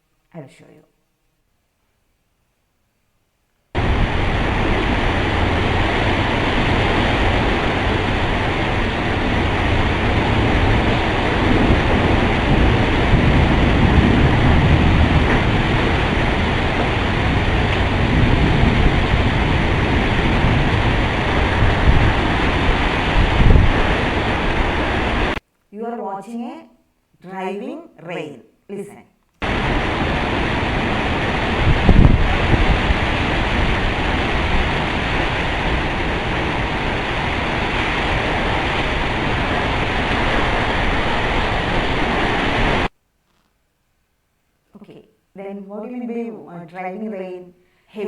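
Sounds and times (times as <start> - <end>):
heavy rain pouring: 3.8 - 25.4, 29.4 - 42.9
wind gusting on microphone: 3.8 - 25.4, 29.4 - 42.9.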